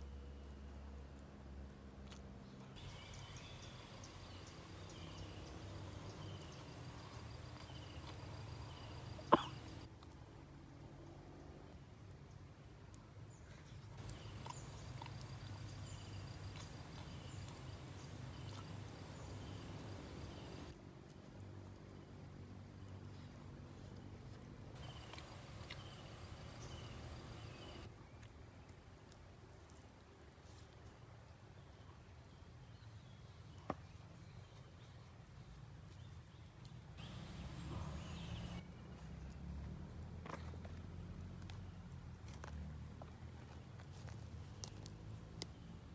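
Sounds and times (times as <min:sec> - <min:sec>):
insects trilling: 0:02.8 - 0:09.9, 0:14.0 - 0:20.7, 0:24.8 - 0:27.9, 0:37.0 - 0:38.6.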